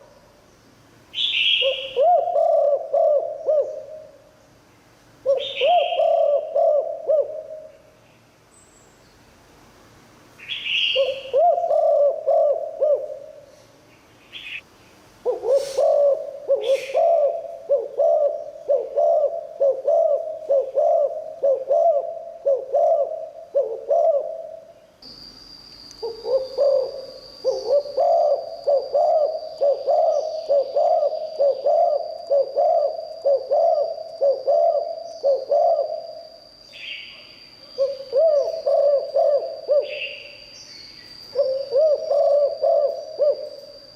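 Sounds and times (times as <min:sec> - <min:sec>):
steady high whine: 0:00.0 - 0:43.9
dove cooing: 0:01.2 - 0:04.3, 0:05.2 - 0:07.8, 0:10.6 - 0:13.6, 0:15.2 - 0:24.8, 0:26.0 - 0:36.4, 0:37.7 - 0:40.4, 0:41.3 - 0:43.7.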